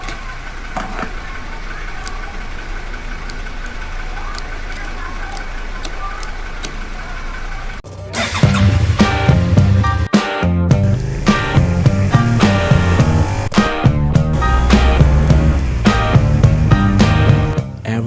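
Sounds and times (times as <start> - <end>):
motor vehicle rumble: 0.0 - 9.0, 10.7 - 17.8
music: 8.1 - 18.0.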